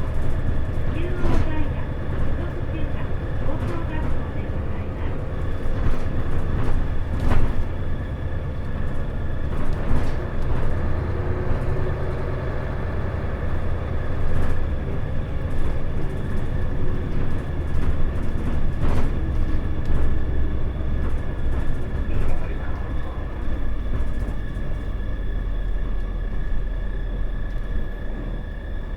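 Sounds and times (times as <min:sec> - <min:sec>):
bus body rattles and clicks: 0:00.0 - 0:28.9
bus engine drone with whine: 0:00.0 - 0:28.9.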